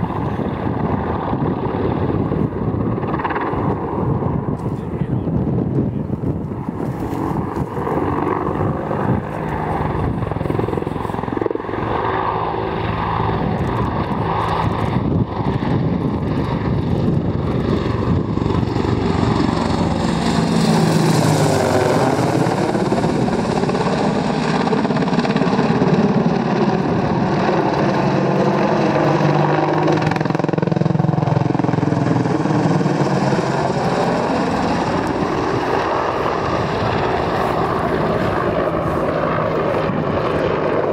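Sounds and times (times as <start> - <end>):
helicopter rotor and engines: 0.0 - 40.9.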